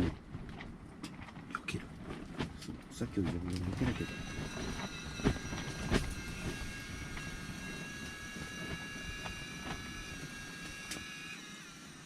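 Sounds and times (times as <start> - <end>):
electric reel motor whining: 3.5 - 12.0.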